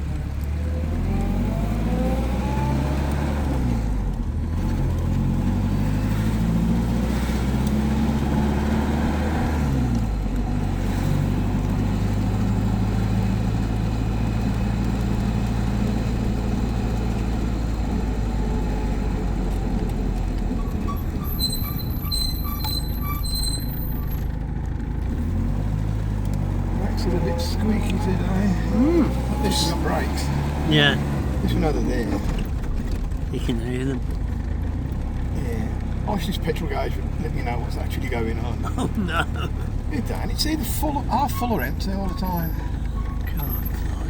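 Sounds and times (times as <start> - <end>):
car engine running: 0.0 - 44.0
squeaking brakes: 19.6 - 24.5, 26.7 - 32.8, 35.2 - 44.0.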